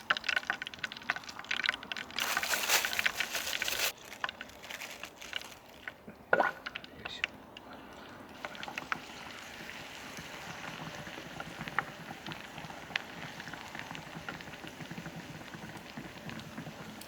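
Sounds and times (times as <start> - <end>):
fish frying in hot oil: 0.0 - 5.8, 8.3 - 17.0.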